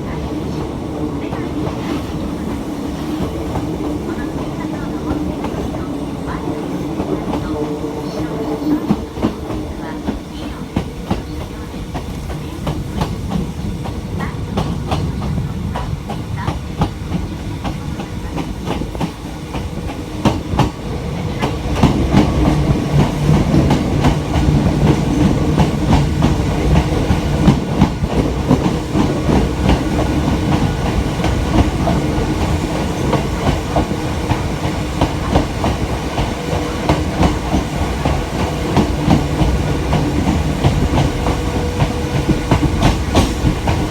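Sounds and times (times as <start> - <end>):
train rumble and hum: 0.0 - 43.9
train wheels clicking over rail joints: 8.8 - 43.9.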